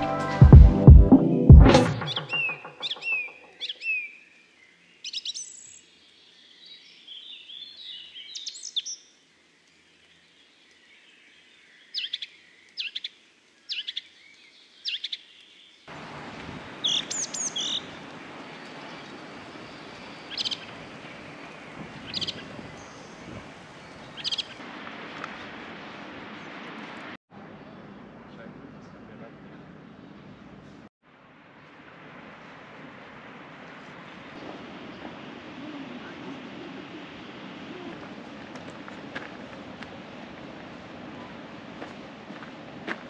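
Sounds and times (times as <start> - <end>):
steady outdoor background noise: 0.0 - 43.0
birds chirping: 1.1 - 24.6.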